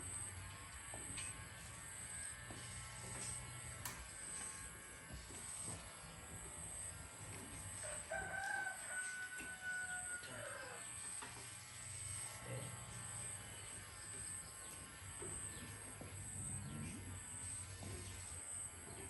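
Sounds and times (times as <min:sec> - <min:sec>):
rooster crowing: 0:07.8 - 0:11.0.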